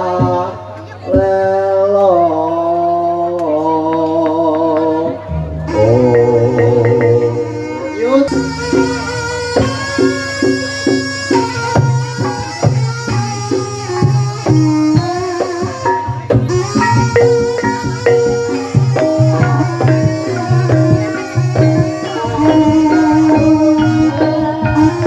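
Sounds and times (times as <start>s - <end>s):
person chanting: 0.0s - 25.0s
pitched percussion ensemble: 5.0s - 25.0s
hand drum strokes: 5.3s - 25.0s.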